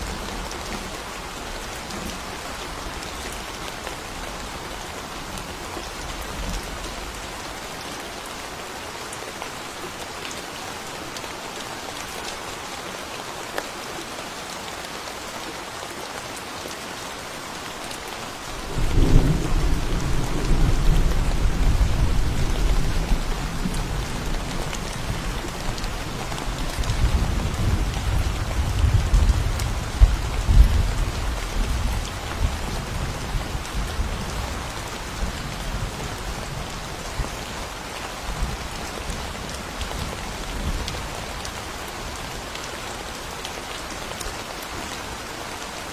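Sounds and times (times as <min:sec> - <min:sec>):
steady rain falling: 0:00.0 - 0:45.9
deep roll of thunder: 0:18.8 - 0:24.3.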